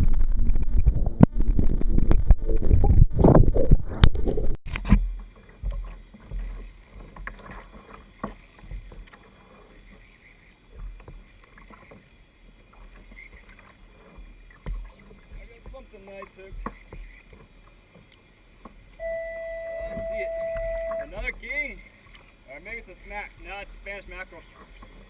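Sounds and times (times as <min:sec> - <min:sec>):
low rumble: 0:00.0 - 0:05.2
water splashing against kayak: 0:00.0 - 0:25.0
faint water lapping: 0:04.9 - 0:25.0.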